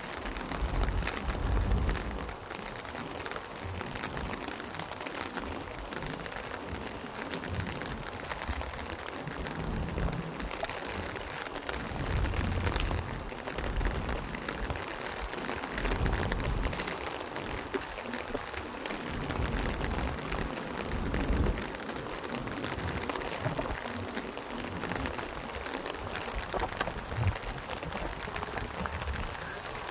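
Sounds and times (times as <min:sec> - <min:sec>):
rain hissing: 0:00.0 - 0:29.9
low rumbles: 0:22.5 - 0:29.9.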